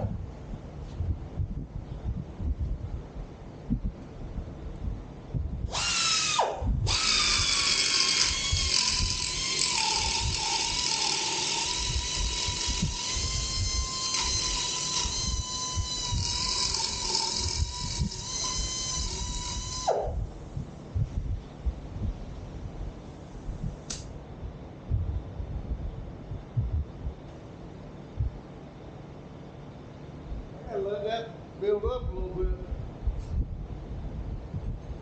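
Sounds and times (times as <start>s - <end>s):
electric power tool motor whining: 5.7s - 20.2s.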